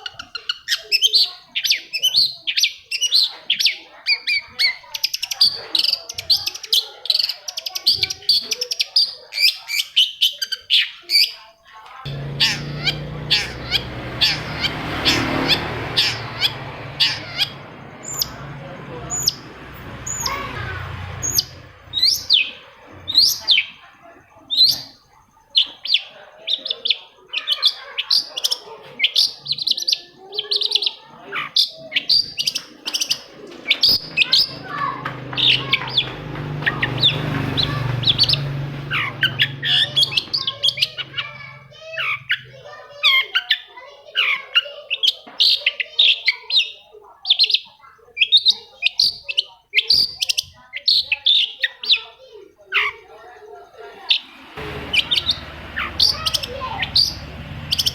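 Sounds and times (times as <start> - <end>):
shrike singing chirps and whistles: 54.9 - 57.9.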